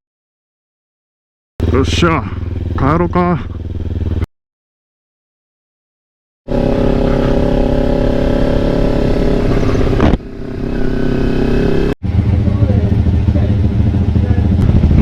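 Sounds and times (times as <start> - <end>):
motorcycle engine running loudly: 1.6 - 4.3, 6.5 - 15.0.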